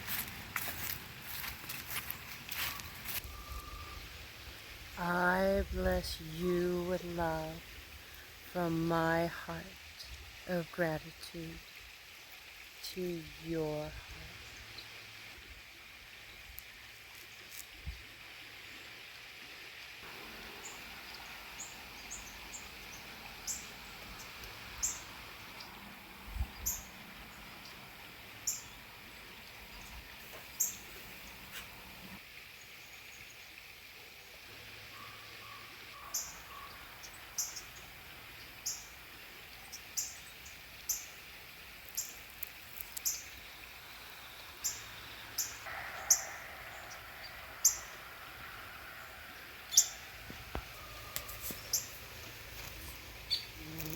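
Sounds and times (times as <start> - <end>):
small songbirds chirping: 20.0 - 33.6, 34.9 - 41.2, 41.8 - 53.9.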